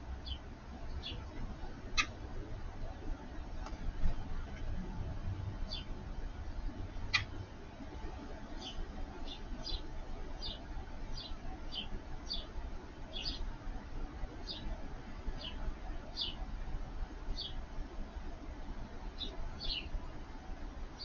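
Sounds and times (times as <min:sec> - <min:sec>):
bird chirping: 0:00.2 - 0:01.3, 0:05.7 - 0:05.9, 0:08.5 - 0:12.5, 0:13.1 - 0:13.5, 0:14.4 - 0:14.8, 0:15.4 - 0:16.4, 0:17.4 - 0:17.6, 0:19.2 - 0:20.0.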